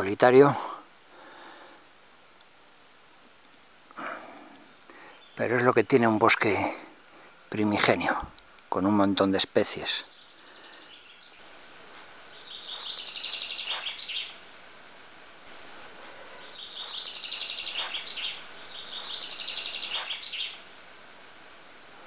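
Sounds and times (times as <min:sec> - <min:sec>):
quiet forest background: 0:00.0 - 0:22.0
songbird trilling: 0:12.3 - 0:14.4, 0:16.3 - 0:20.7.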